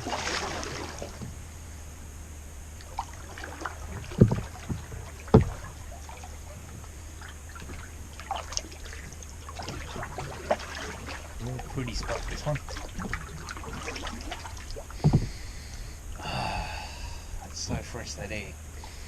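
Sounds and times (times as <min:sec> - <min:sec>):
paddle splashing water: 0:00.0 - 0:01.8, 0:02.7 - 0:16.0
sharp knocks: 0:04.1 - 0:05.6, 0:15.0 - 0:15.4.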